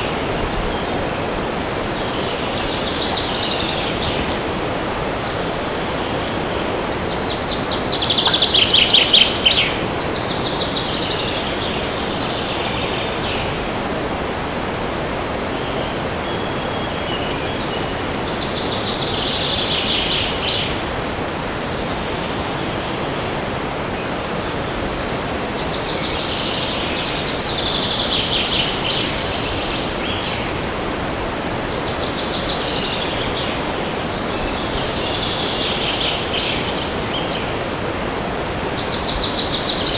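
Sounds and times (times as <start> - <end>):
songbirds singing trilled phrases: 0.0 - 13.8.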